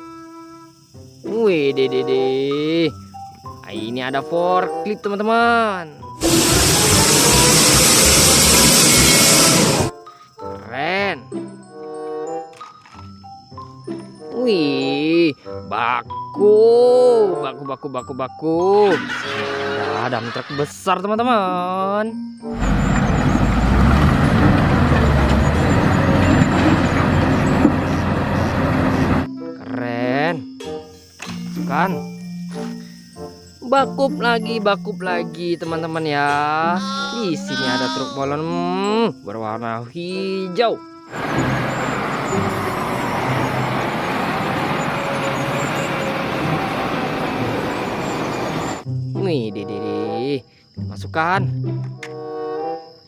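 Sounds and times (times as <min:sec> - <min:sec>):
truck engine running: 0:06.2 - 0:09.9, 0:22.5 - 0:29.3, 0:41.1 - 0:48.8.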